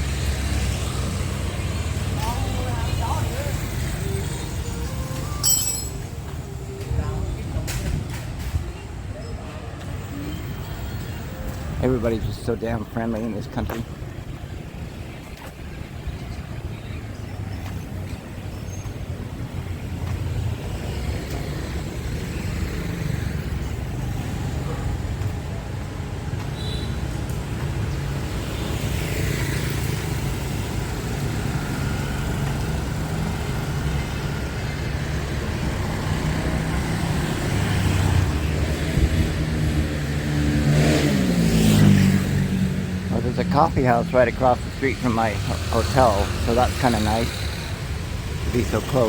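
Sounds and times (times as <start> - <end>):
cars and motorbikes passing: 0.0 - 49.0
vehicle passing close and accelerating: 28.8 - 48.8.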